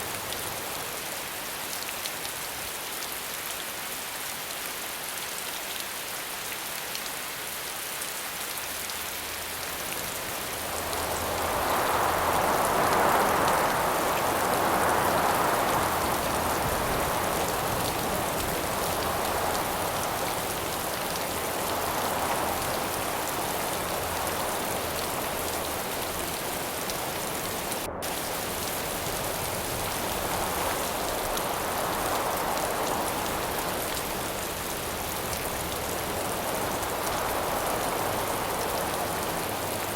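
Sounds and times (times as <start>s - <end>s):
steady rain falling: 0.0s - 39.9s
wind gusting: 9.9s - 39.9s.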